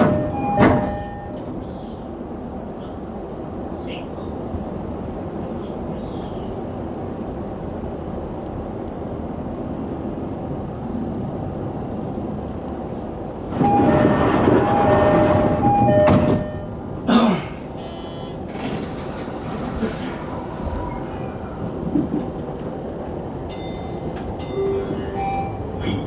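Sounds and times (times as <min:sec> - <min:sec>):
electric train running: 0:13.5 - 0:16.6
level crossing bell: 0:23.5 - 0:25.6.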